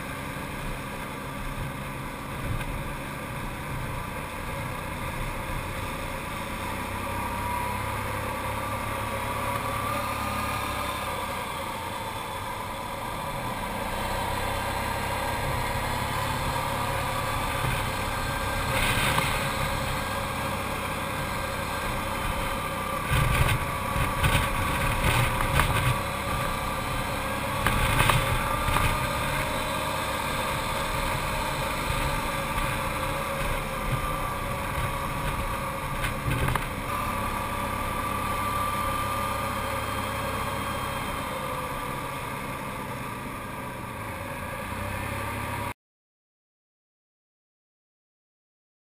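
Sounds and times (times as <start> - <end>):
atv engine running: 0.0 - 45.7.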